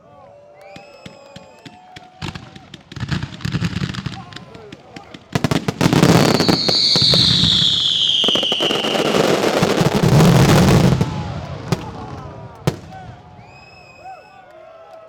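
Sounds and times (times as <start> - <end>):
firework whistle falling in pitch: 0.6 - 2.6, 5.8 - 11.2, 12.7 - 14.3
fireworks bangs and crackling: 0.7 - 14.0.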